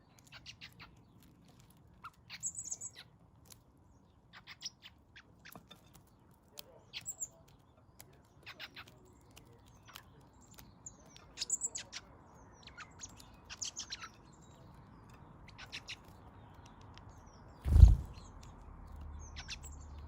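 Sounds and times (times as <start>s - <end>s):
birds chirping: 6.8s - 20.0s.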